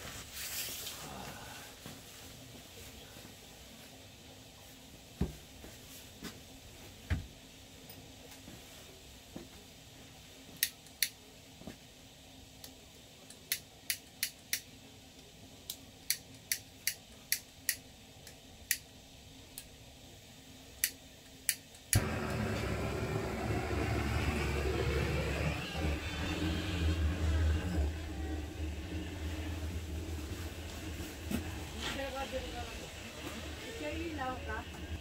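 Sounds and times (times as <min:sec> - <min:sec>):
wood crackling in a stove: 0:00.0 - 0:35.0
steady low rumble: 0:22.0 - 0:35.0.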